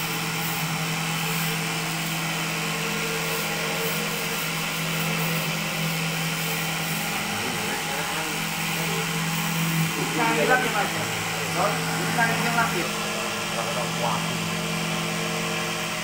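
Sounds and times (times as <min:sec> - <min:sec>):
cotton candy machine humming: 0:00.0 - 0:16.0.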